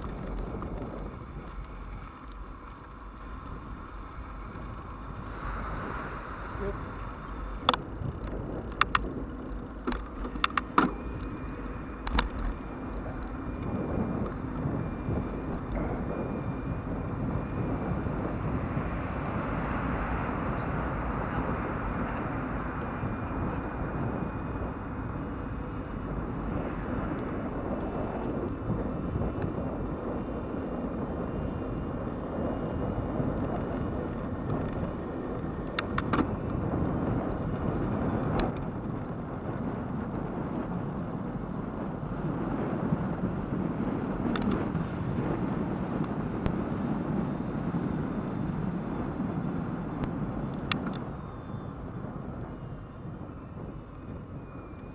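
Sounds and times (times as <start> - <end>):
bicycle tyre rumble: 0.0 - 54.9
wind on microphone: 0.0 - 54.9.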